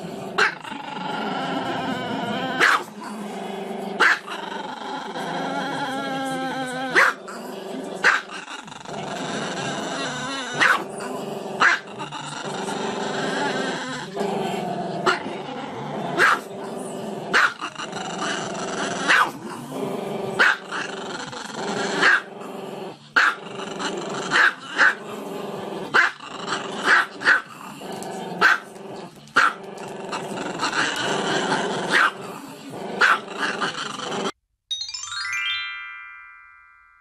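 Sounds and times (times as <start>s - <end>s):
dog growling howl: 0.0s - 7.2s.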